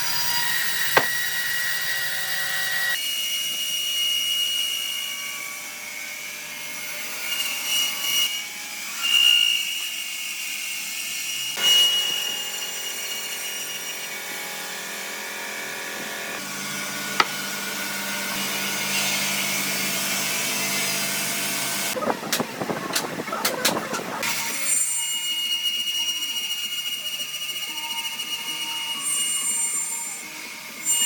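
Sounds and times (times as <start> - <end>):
power tools cutting wood: 0.0 - 31.0.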